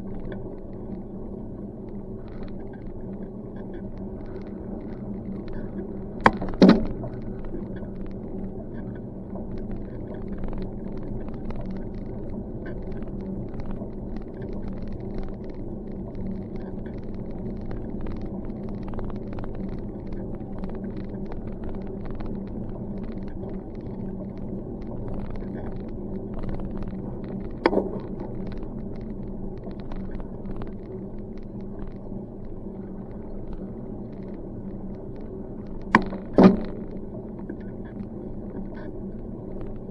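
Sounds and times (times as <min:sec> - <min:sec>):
bicycle rolling on road: 0:00.0 - 0:39.9.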